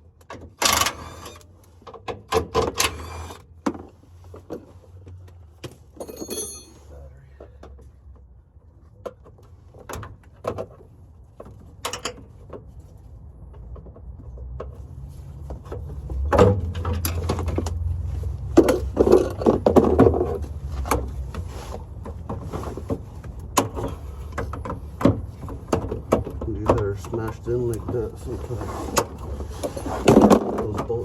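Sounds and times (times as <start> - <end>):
metallic clinks of hand tools: 6.0 - 6.9.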